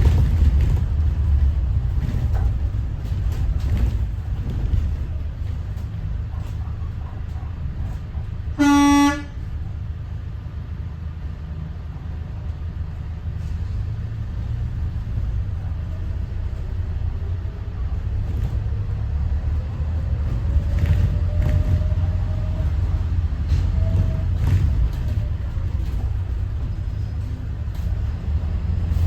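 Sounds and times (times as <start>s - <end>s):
bus diesel engine drone: 0.0s - 29.0s
road noise: 0.0s - 29.0s
vehicle horn toot: 8.6s - 9.4s.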